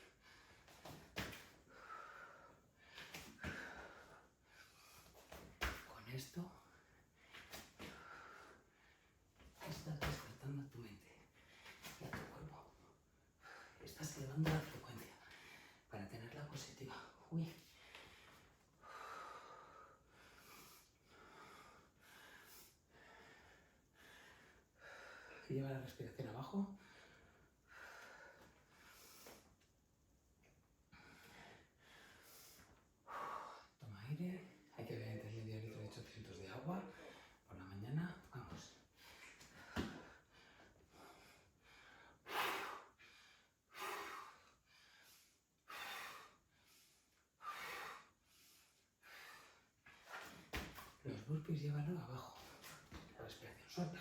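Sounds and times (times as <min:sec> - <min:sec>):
woman breathing hard: 0:00.0 - 0:05.4, 0:06.9 - 0:09.3, 0:17.7 - 0:25.5, 0:38.9 - 0:50.3.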